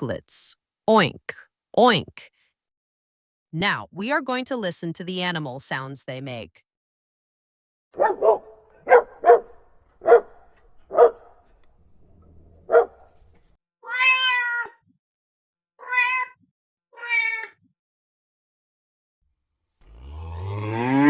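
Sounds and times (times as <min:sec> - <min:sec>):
dog barking: 0:08.0 - 0:11.5, 0:12.6 - 0:13.2
cat meowing: 0:13.8 - 0:14.9, 0:15.8 - 0:16.4, 0:17.0 - 0:17.6.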